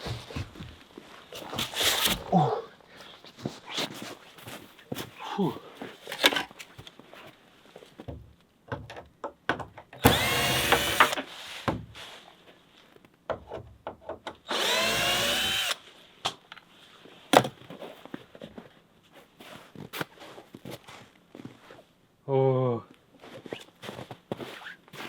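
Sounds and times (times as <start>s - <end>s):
power drill motor spinning: 10.0s - 11.3s, 14.5s - 15.8s.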